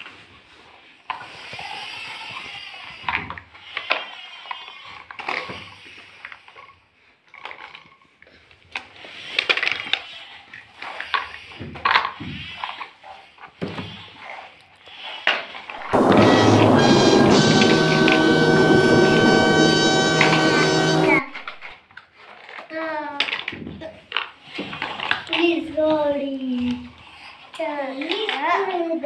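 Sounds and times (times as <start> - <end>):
plastic toys clattering: 7.3 - 8.0, 22.0 - 26.9, 27.6 - 29.0.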